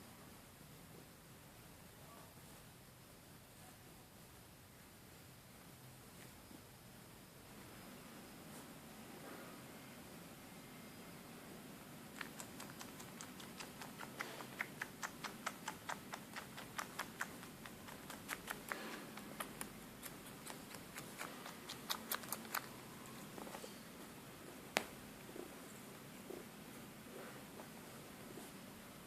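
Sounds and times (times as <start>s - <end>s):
cat sucking clicks: 12.1s - 22.8s.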